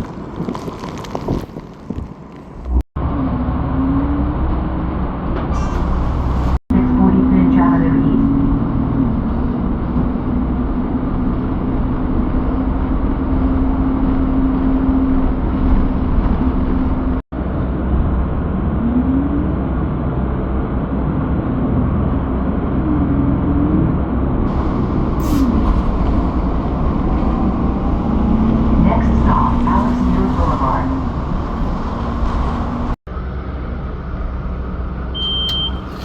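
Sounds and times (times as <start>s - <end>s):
road traffic rush: 0.0s - 36.0s
vehicle engine hum: 0.0s - 36.0s
wind: 0.0s - 36.0s
cars passing by: 17.4s - 36.0s.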